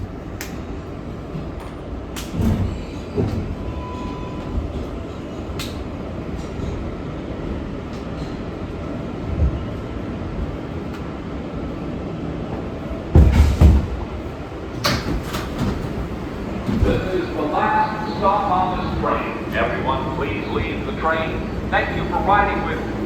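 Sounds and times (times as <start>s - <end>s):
subway car wheels and motors rumbling: 0.0s - 23.0s
thumps from the track: 13.1s - 17.2s
loud clunk: 13.2s - 14.0s.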